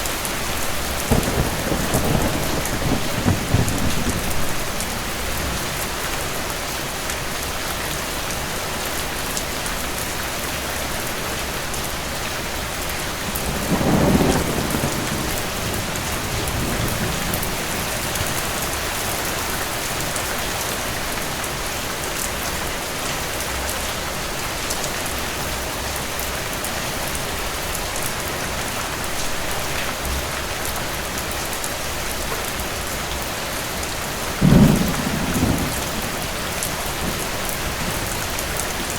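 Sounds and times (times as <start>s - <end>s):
steady rain falling: 0.0s - 38.9s
distant thunder rumbling: 0.8s - 6.3s, 13.3s - 19.7s, 34.2s - 38.8s.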